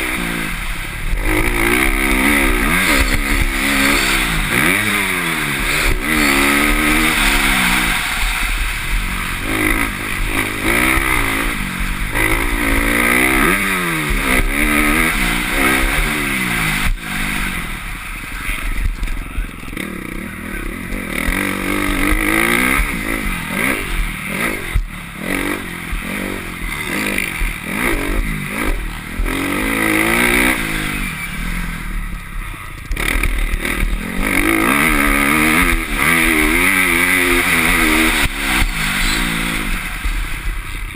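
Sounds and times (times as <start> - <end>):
motocross bike engine revving: 0.0 - 40.9.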